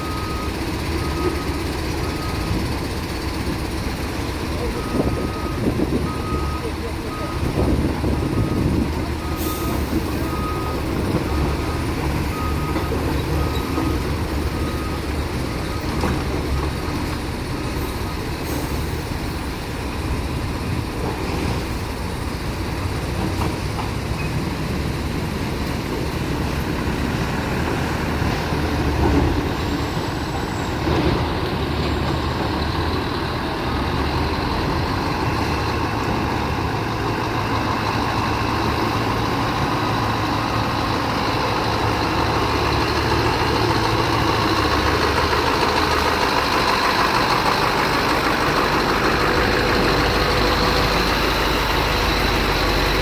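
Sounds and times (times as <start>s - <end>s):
truck engine running: 0.0s - 53.0s
reversing beeper: 4.5s - 16.0s.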